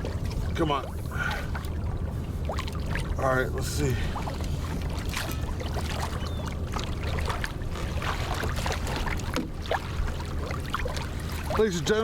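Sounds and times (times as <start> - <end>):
water lapping against kayak hull: 0.0 - 12.0
short splashes and knocks: 3.9 - 12.0.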